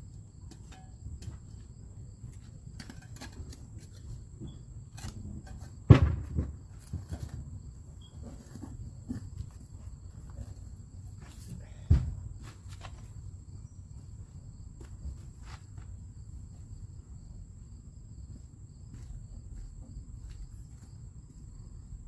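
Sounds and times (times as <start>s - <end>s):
crickets chirping: 0.0s - 22.0s
loud thump: 5.9s - 6.7s, 11.9s - 12.2s.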